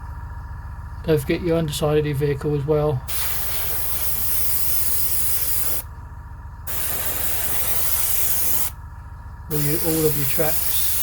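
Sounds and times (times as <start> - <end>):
steady low hum: 0.0 - 11.0
airbrush spraying hiss: 3.1 - 5.9, 6.7 - 8.7, 9.5 - 11.0.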